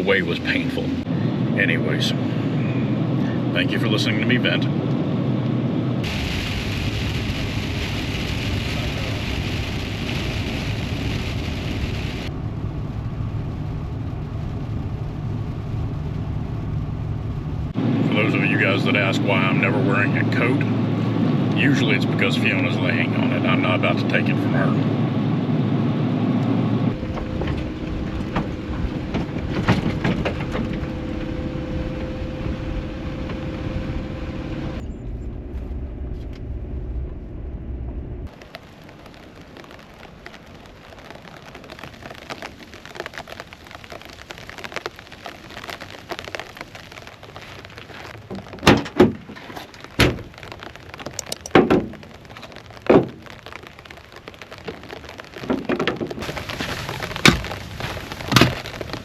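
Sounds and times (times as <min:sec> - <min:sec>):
steady hum: 0:05.8 - 0:18.5
rain falling: 0:06.0 - 0:24.5, 0:26.9 - 0:33.8, 0:38.2 - 0:59.0.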